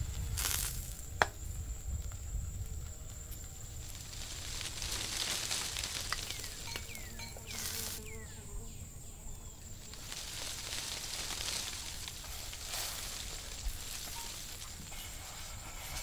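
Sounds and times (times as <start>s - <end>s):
high insect whine: 0.0s - 16.0s
bird chirps: 6.2s - 9.6s.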